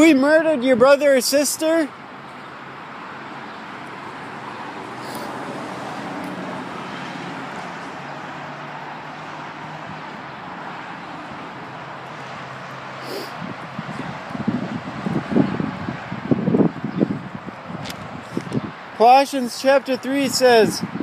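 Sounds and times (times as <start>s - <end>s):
tyre hiss of traffic: 1.1s - 16.6s.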